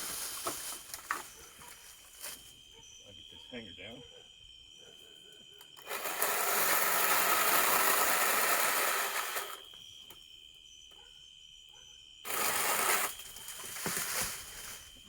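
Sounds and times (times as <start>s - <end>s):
pole saw cutting a limb: 5.8s - 9.6s, 12.3s - 14.5s
saw chain chattering: 12.3s - 13.4s.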